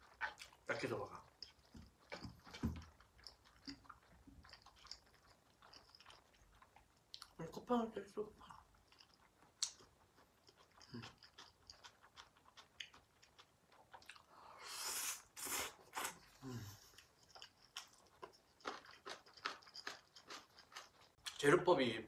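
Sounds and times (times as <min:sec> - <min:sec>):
chewing with mouth clicks: 0:00.0 - 0:07.6, 0:08.4 - 0:14.4, 0:15.0 - 0:21.4
slurping noodles: 0:14.3 - 0:17.0.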